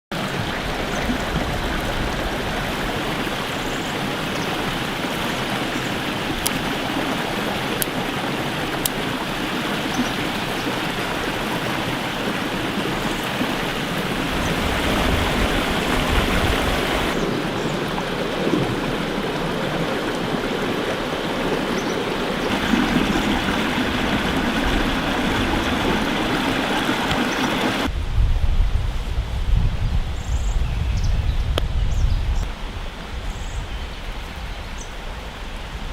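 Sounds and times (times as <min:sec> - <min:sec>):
stream rushing: 0:00.1 - 0:28.0, 0:32.4 - 0:35.9.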